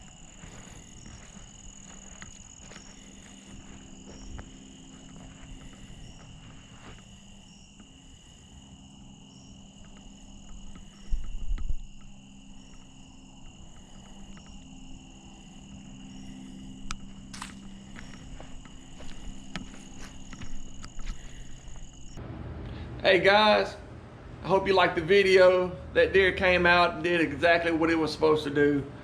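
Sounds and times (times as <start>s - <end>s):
insects chirring: 0.0s - 22.2s.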